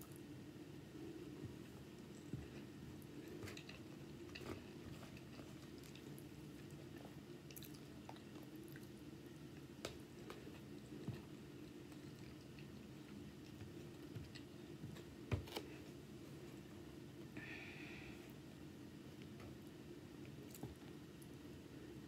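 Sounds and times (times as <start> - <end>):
steady low hum: 0.0 - 22.0
chewing: 1.6 - 15.7.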